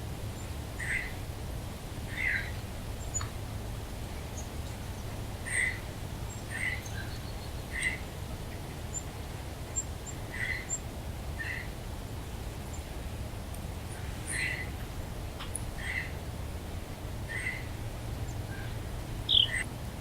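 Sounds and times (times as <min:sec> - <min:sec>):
bird calls: 0:02.1 - 0:03.3, 0:05.5 - 0:08.0, 0:10.3 - 0:10.8, 0:14.3 - 0:14.7, 0:15.4 - 0:16.2, 0:17.3 - 0:17.7, 0:18.3 - 0:19.7.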